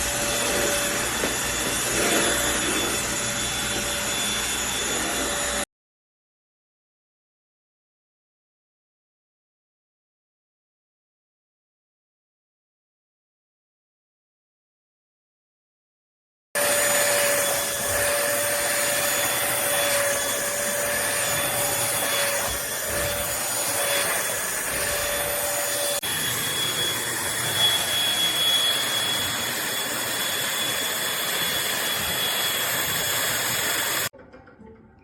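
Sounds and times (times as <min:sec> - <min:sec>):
stick vacuum running: 0:00.0 - 0:05.6, 0:16.6 - 0:34.2.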